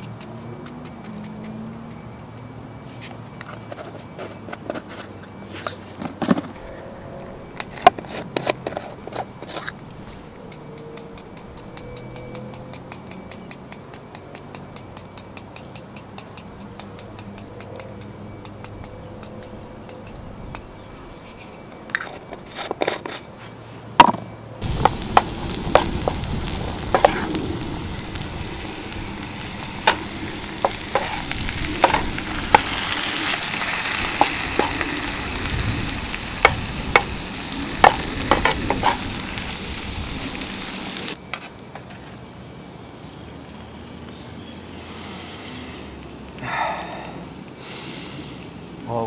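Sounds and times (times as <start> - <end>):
utensil scraping a pan: 7.7 - 10.3, 21.2 - 23.6, 24.8 - 27.4, 29.8 - 34.9, 37.8 - 39.1
food sizzling in a pan: 24.6 - 41.2.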